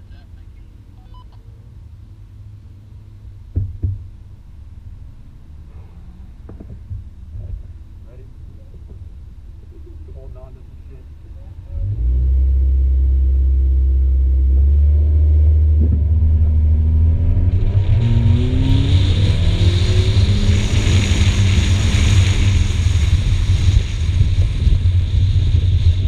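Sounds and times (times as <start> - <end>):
car engine revving: 4.6 - 26.0.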